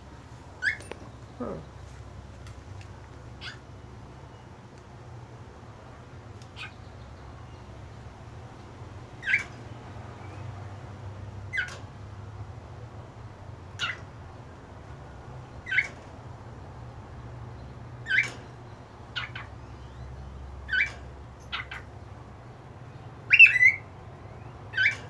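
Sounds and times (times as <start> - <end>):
faint low hum: 0.0 - 25.0
cockatiel chirping: 23.3 - 23.8.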